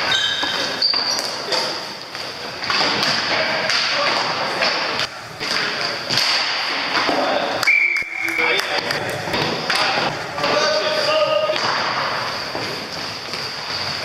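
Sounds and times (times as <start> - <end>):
hockey sticks knocking: 0.0 - 14.0.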